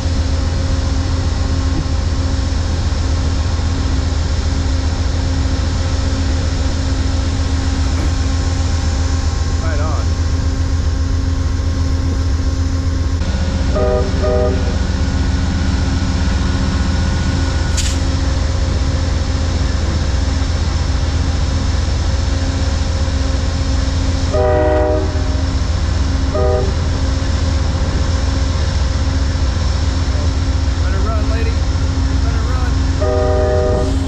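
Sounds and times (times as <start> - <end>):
diesel locomotive rumbling: 0.0 - 34.0
train horn blasts: 13.3 - 15.0, 24.2 - 25.6, 26.3 - 27.1, 32.9 - 34.0
brief hiss: 17.7 - 18.1.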